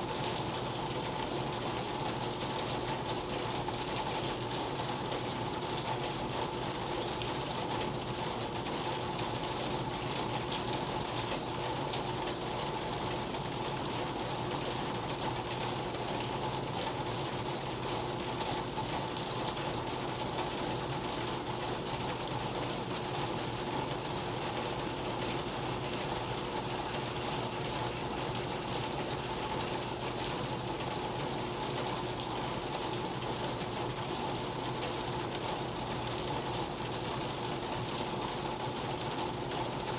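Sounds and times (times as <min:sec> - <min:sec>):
rain pattering on roof: 0:00.0 - 0:39.9.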